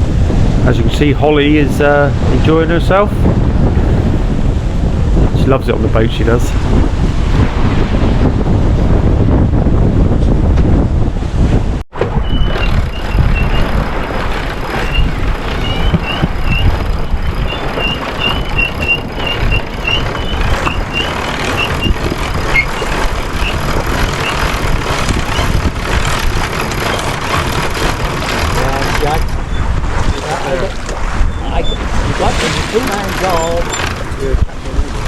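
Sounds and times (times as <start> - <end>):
wind noise: 0.0 - 35.0
rushing water: 12.0 - 35.0.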